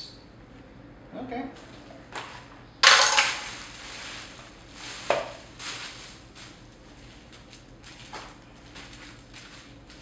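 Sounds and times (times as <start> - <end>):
packaging rustling: 3.1 - 10.0.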